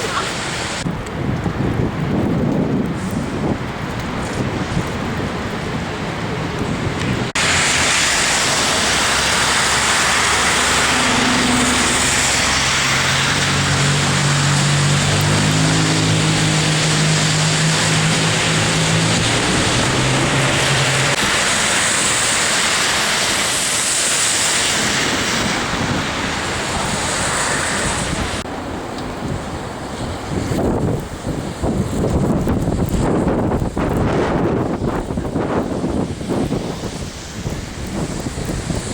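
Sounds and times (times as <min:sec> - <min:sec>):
vehicle engine humming low: 0:00.0 - 0:24.6
city traffic noise: 0:00.0 - 0:38.9
storm wind on microphone: 0:00.0 - 0:38.9.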